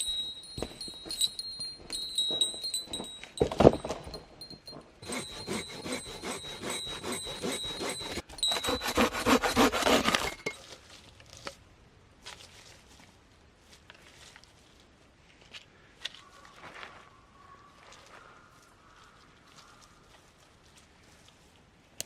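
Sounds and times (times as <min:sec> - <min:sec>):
high bell-like tone: 0:00.0 - 0:09.6
metal jingling and clinking: 0:00.0 - 0:10.6.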